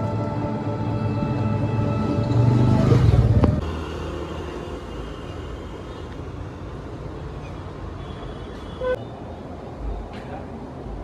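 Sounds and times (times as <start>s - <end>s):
vehicle low rumble: 0.0s - 6.6s.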